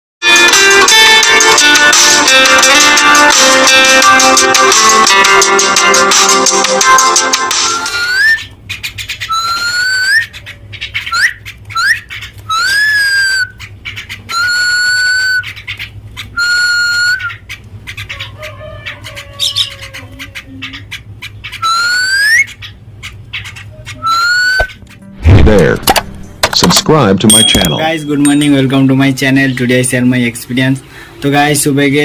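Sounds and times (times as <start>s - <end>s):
myna whistling: 7.7s - 8.5s, 9.3s - 10.4s, 11.1s - 13.6s, 14.3s - 15.6s, 16.3s - 17.4s, 21.6s - 22.6s, 23.8s - 24.8s.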